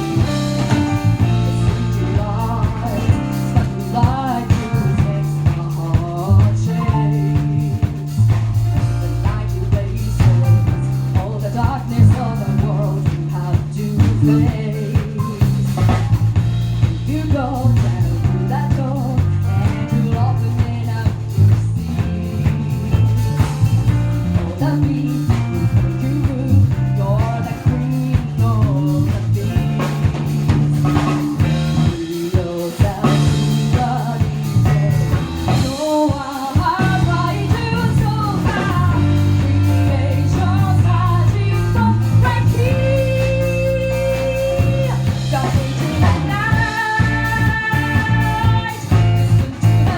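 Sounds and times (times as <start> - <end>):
bass guitar: 0.0 - 49.9
drum kit beat: 0.0 - 49.9
singing voice: 0.0 - 49.9.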